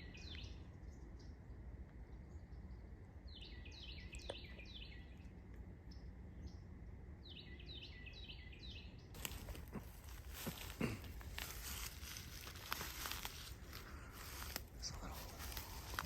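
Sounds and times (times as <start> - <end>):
wren singing: 0.0 - 1.4, 2.2 - 5.2, 7.2 - 16.0
rustling crinkling noise: 9.2 - 16.0.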